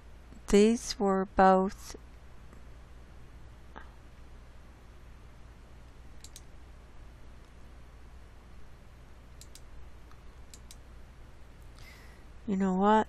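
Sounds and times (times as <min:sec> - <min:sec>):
low electrical hum: 0:00.0 - 0:13.0
computer mouse clicks: 0:06.2 - 0:06.5, 0:09.4 - 0:10.8.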